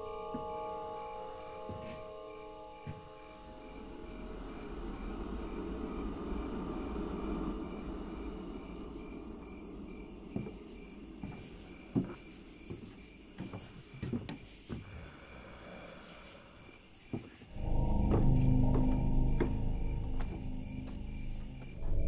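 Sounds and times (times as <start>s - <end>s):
crickets chirping: 0.0s - 22.0s
loud low sound: 17.6s - 22.0s.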